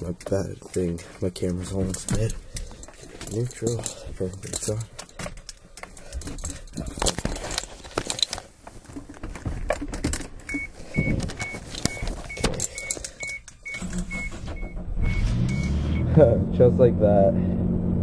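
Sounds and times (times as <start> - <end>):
keys rattling: 0.6 - 8.4, 9.7 - 14.2.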